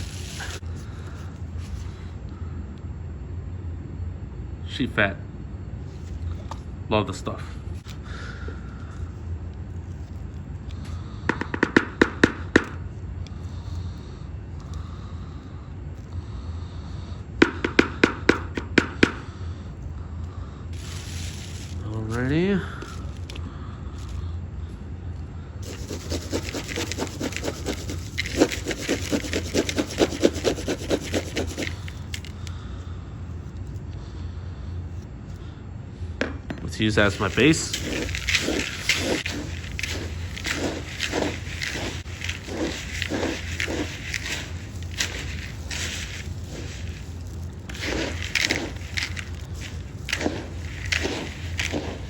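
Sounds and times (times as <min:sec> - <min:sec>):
grain feed rasping and rustling: 0:00.0 - 0:01.9, 0:20.8 - 0:23.2, 0:25.6 - 0:32.4, 0:37.0 - 0:52.0
steady low hum: 0:00.0 - 0:52.0.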